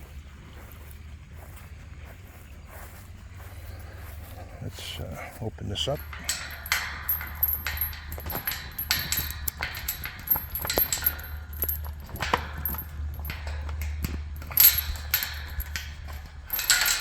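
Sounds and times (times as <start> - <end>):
keys and metal clinking: 5.8 - 17.0.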